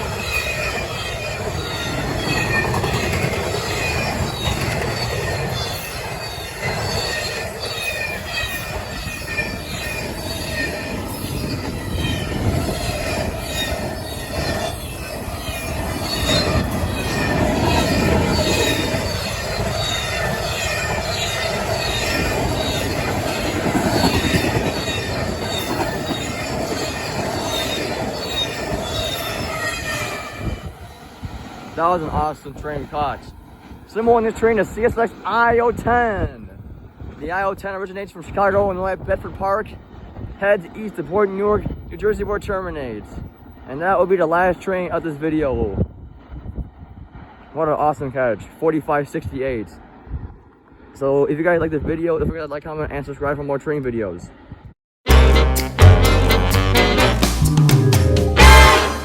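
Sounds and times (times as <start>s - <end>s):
high-pitched wheel squeals: 0.0s - 31.0s
clickety-clack at rail joints: 0.0s - 44.2s
train wheels rumbling on rails: 0.0s - 45.0s.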